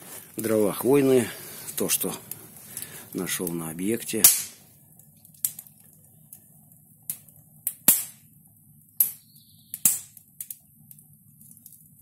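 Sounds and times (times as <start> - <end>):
firewood popping and crackling: 0.0 - 12.0.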